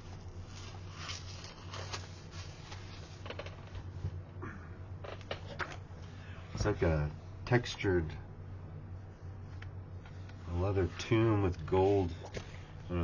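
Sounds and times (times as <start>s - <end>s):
hands handling a book: 0.0s - 4.2s.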